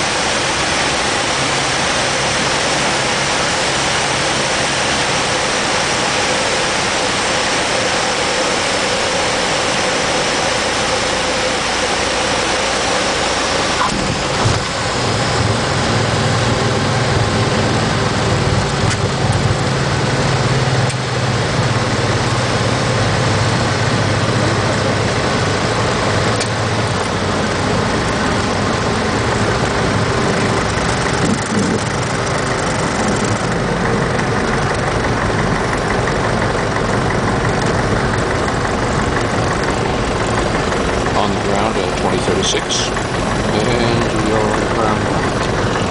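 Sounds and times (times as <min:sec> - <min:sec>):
aircraft engine droning: 0:00.0 - 0:45.9
deeper low drone: 0:00.0 - 0:45.9
rush of air: 0:29.3 - 0:35.5.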